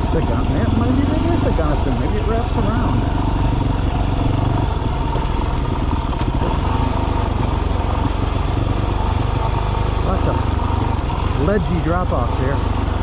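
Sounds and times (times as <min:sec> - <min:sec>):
motorcycle engine running steadily: 0:00.0 - 0:13.0.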